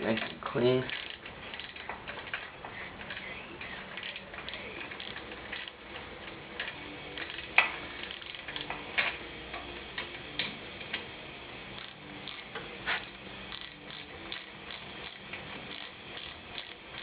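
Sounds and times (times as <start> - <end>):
socket ratchet clicking: 0.2 - 3.2, 13.5 - 17.0.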